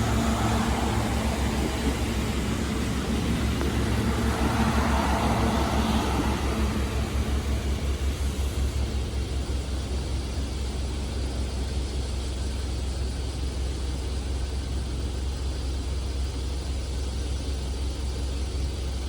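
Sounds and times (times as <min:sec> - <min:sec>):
electric train rumbling past: 0:00.0 - 0:09.6.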